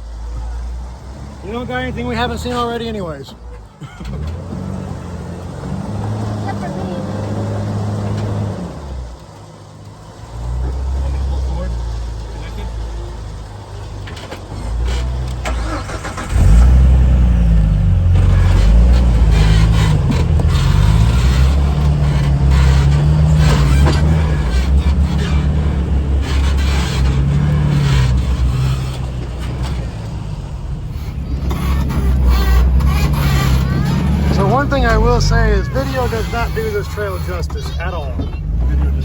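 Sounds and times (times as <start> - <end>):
vehicle engine revving: 0.0 - 39.0
knocks and clunks: 13.7 - 39.0.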